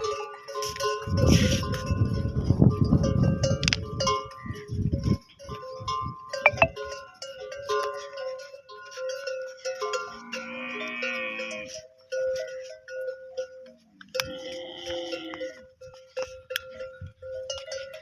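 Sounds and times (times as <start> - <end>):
livestock bells clinking: 0.0 - 18.0
animal bleat: 10.2 - 11.8, 14.1 - 15.6.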